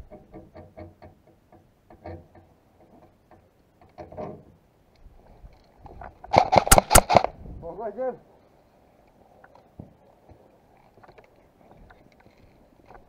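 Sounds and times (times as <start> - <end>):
airsoft gun shots: 6.3 - 7.3.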